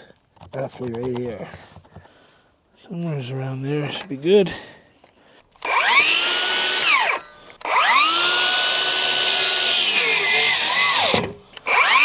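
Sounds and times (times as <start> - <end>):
power tool motor whining: 5.6 - 12.0.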